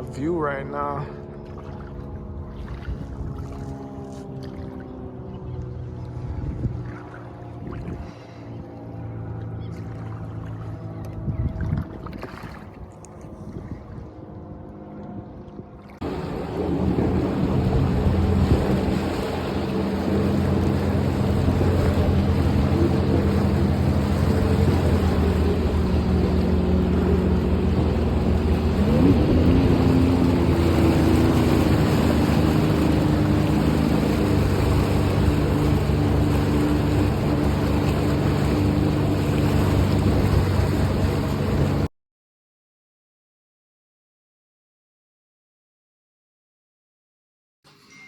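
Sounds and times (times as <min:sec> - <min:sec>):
jet ski engine running: 0:00.0 - 0:41.9
water noise: 0:00.0 - 0:41.9
wind noise: 0:02.4 - 0:03.6, 0:11.2 - 0:14.3, 0:15.2 - 0:41.8.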